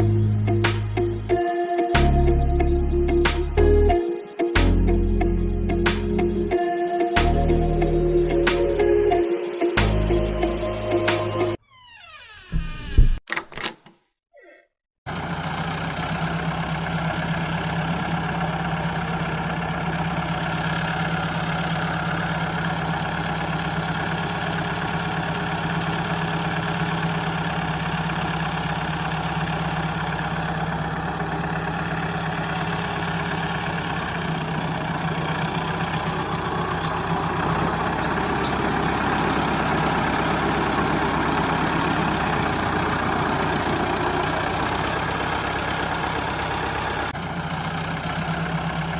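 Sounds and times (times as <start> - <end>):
toy tractor motor droning: 15.4 - 48.9.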